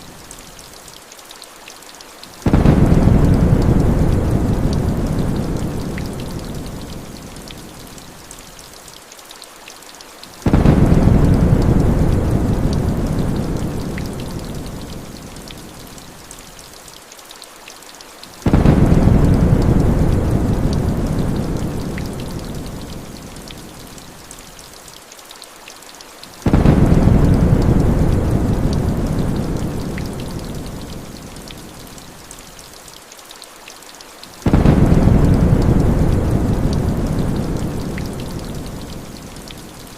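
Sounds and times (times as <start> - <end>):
heavy rain hissing: 2.2 - 8.8, 10.2 - 16.8, 18.2 - 25.0, 26.1 - 32.8, 34.1 - 39.9
thunder rolling: 2.5 - 5.8, 26.5 - 29.9, 34.5 - 38.2.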